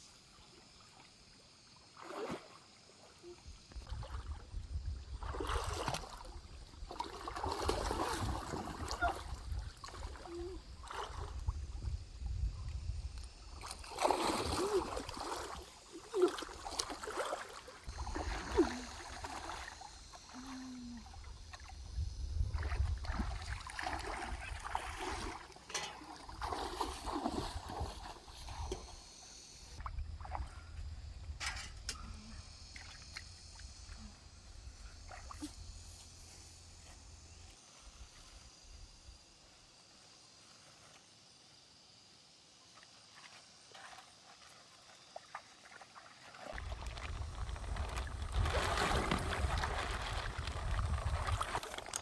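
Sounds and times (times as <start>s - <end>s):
water splashing in a stream: 0.3s - 12.0s, 12.6s - 28.9s, 29.8s - 30.6s, 42.7s - 52.0s.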